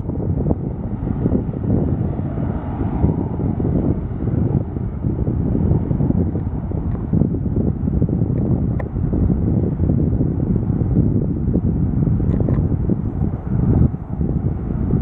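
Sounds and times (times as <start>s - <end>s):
aircraft engines passing: 0.0s - 15.0s
wind buffeting microphone: 0.0s - 15.0s.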